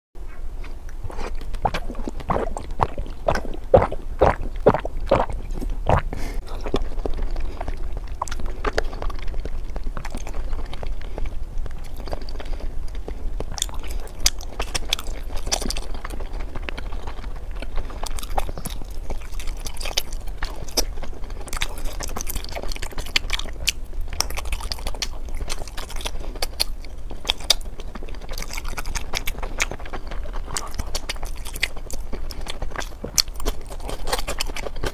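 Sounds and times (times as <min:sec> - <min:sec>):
person chewing crunchy food: 0:00.2 - 0:34.9
wet mouth clicks: 0:00.6 - 0:11.0.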